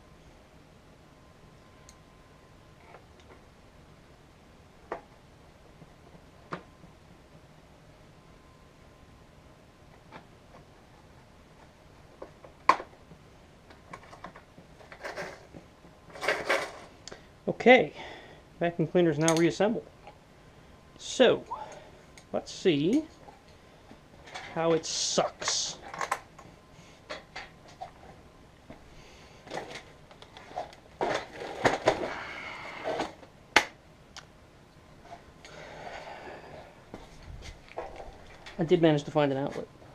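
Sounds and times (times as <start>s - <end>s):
rustling and scraping: 9.8s - 17.0s, 23.1s - 33.3s, 35.0s - 38.7s.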